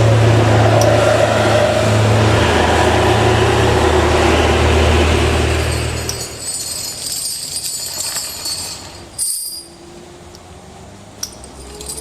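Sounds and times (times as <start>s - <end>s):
vehicle engine hum: 0.0s - 12.0s
rattle: 5.1s - 9.8s, 11.2s - 12.0s
metallic jingling: 5.4s - 10.0s, 11.2s - 12.0s.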